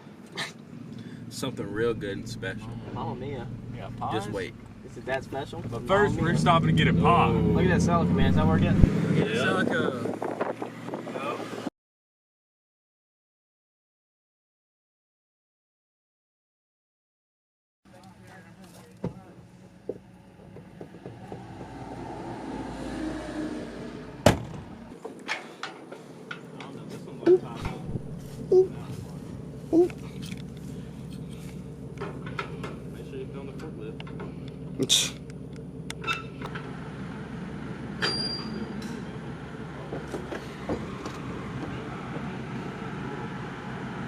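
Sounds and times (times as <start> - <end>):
motor vehicle passing by: 0.4 - 11.7, 19.5 - 25.0, 25.9 - 44.0
forklift engine running: 0.6 - 9.1, 27.3 - 44.0
brief high squeal: 38.0 - 38.8.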